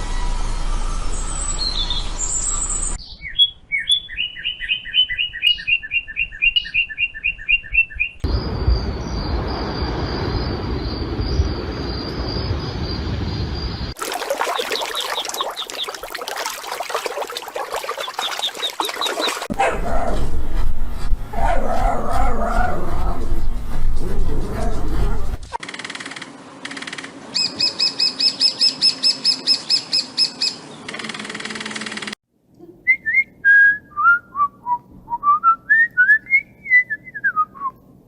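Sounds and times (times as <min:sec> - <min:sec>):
bird chirping: 0:01.2 - 0:13.9.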